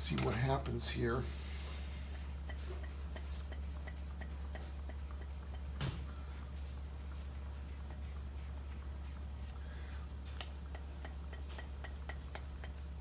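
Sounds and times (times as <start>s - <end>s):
steady low hum: 0.0s - 13.0s
hand pump strokes: 1.8s - 9.6s, 10.4s - 13.0s.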